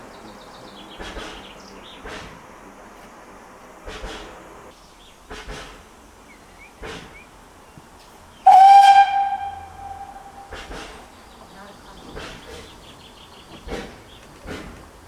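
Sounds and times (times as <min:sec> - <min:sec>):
locomotive exhaust chuffs: 0:00.0 - 0:15.0
steam locomotive whistle: 0:08.4 - 0:11.1.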